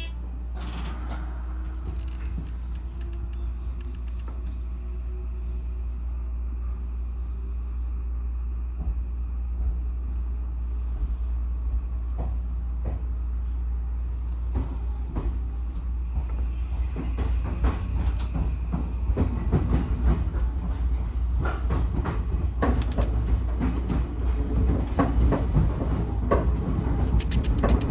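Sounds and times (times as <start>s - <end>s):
electric train rumbling: 0.0s - 27.9s
wheels clacking over rail joints: 14.5s - 27.9s.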